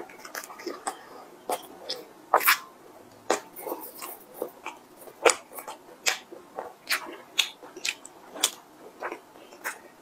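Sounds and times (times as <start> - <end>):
wet mouth smacks chewing: 3.3 - 9.9.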